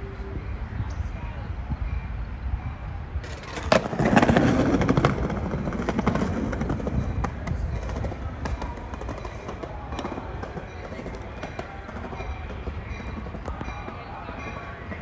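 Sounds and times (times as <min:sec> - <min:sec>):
passenger train rolling in: 0:00.0 - 0:15.0
train clicks and clatter: 0:03.2 - 0:15.0.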